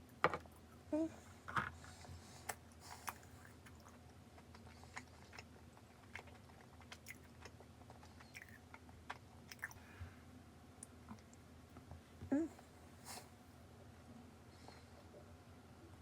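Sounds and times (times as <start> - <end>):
person chewing quietly: 1.4 - 13.3.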